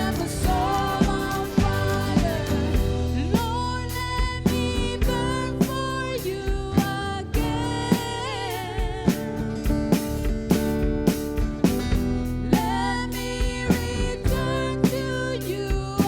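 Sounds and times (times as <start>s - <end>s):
person singing: 0.0s - 9.2s
drums steady beat: 0.0s - 16.0s
guitar: 0.0s - 16.0s.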